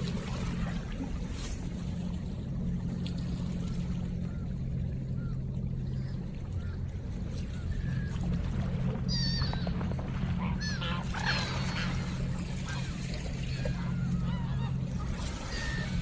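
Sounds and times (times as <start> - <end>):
steady low hum: 0.0 - 16.0
ducks quacking: 10.3 - 15.9.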